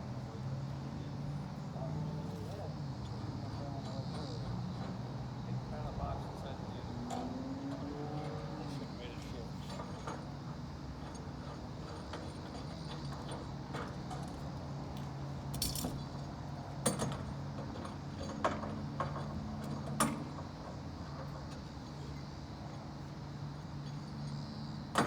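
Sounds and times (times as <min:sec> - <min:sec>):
low mechanical hum: 0:00.0 - 0:25.0
short rattle: 0:15.5 - 0:21.8.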